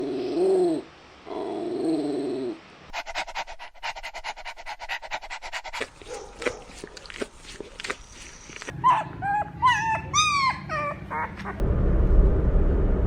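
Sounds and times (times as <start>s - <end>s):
puppy panting: 2.9s - 11.6s
puppy whining: 5.8s - 11.6s.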